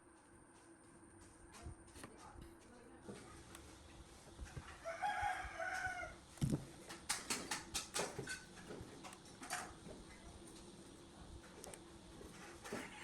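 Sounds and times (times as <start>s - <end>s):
rooster crowing: 4.7s - 6.2s.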